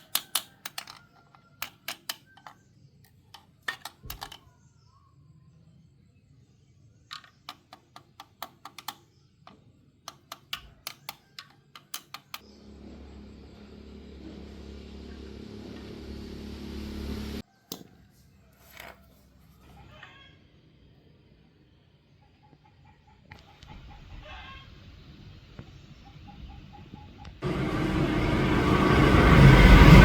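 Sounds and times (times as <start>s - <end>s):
sharp clicks: 7.2s - 9.1s
electric motor hum: 12.4s - 17.4s, 27.4s - 30.0s.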